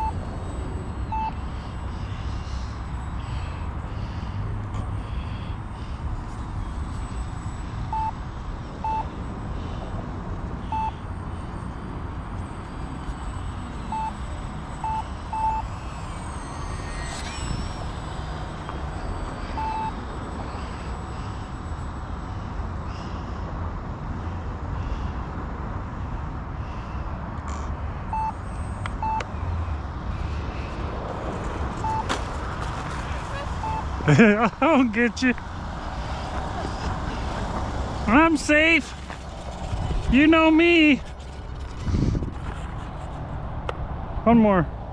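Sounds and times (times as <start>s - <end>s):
short electronic beeps: 0.0s - 5.5s, 6.6s - 22.4s, 27.5s - 29.3s, 31.8s - 32.2s, 33.3s - 33.9s
model airplane motor whine: 0.0s - 25.2s, 27.4s - 34.1s, 34.7s - 44.0s
wind rumble on microphone: 38.9s - 40.3s, 41.0s - 44.9s.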